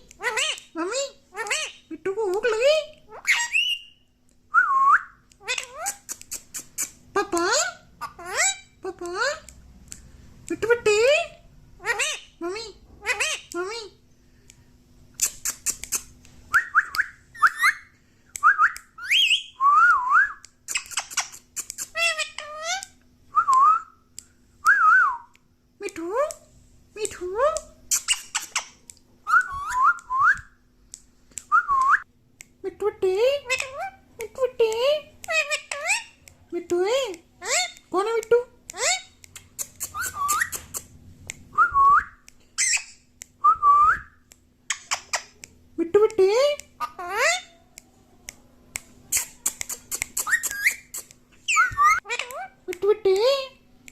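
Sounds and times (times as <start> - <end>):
parrot squawks: 0.2 - 0.7, 1.3 - 1.8, 3.1 - 3.9, 11.8 - 12.3, 37.4 - 37.8, 38.7 - 39.2, 46.8 - 47.6, 49.1 - 52.6
parrot whistling: 16.5 - 20.4, 29.3 - 30.5, 39.8 - 40.7, 49.2 - 52.5
sharp clicks: 47.8 - 53.9.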